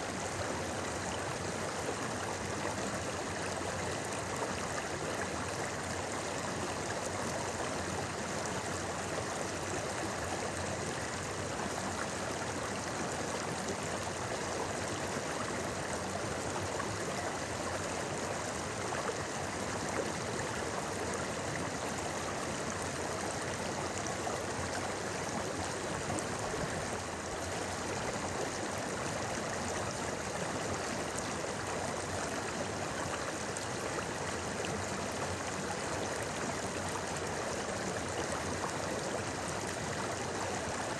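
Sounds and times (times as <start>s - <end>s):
stream babbling over rocks: 0.1s - 40.9s.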